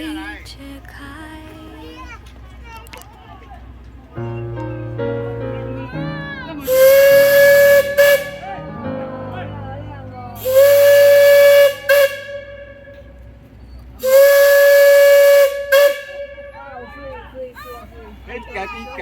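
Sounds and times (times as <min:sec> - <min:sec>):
steam whistle blasts: 0:06.6 - 0:08.6, 0:10.4 - 0:13.1, 0:14.0 - 0:16.6.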